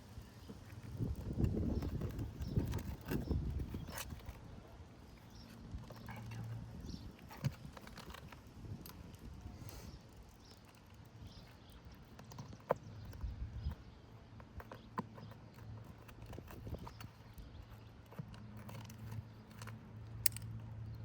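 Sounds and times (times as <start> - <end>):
nails being pulled: 18.3 - 20.7.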